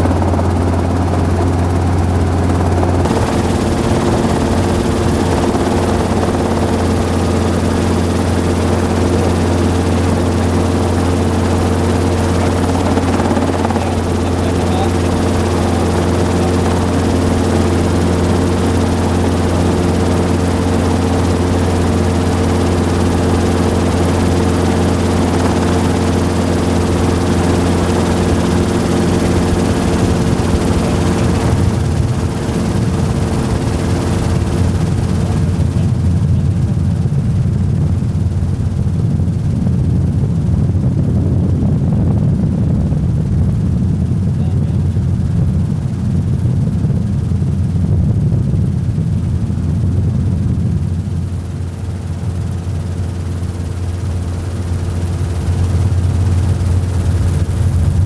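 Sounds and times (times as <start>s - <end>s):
helicopter running: 0.0s - 58.0s.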